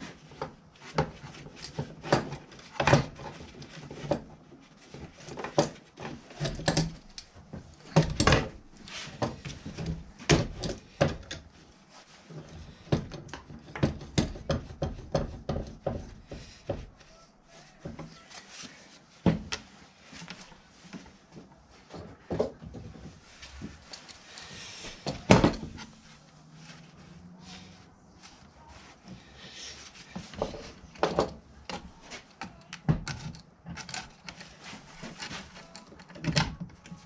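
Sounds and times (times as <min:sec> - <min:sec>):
hard objects knocking and clicking: 0:12.8 - 0:17.0, 0:24.9 - 0:25.9, 0:30.2 - 0:36.9.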